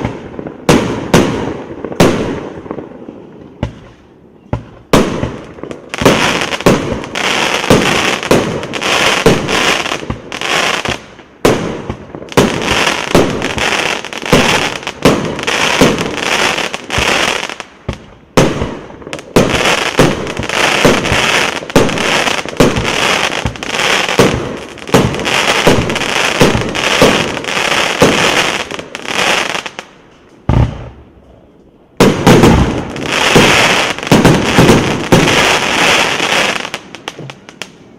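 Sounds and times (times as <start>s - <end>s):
fireworks cake firing with crackle: 0.0s - 29.8s.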